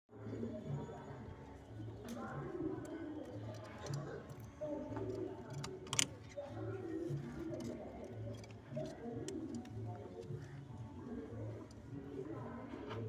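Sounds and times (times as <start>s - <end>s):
pigeons cooing: 2.2s - 5.7s, 6.3s - 13.0s.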